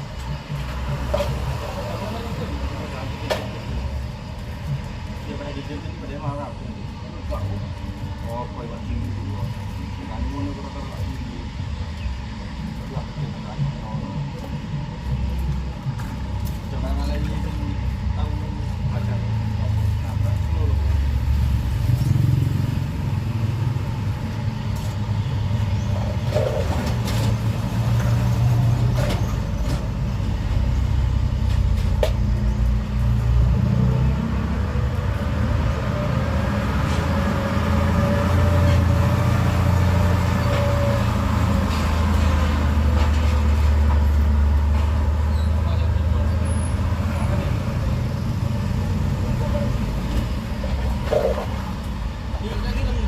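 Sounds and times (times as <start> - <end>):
vehicle engines rumbling: 0.0 - 53.0
vehicle passing by: 18.9 - 53.0.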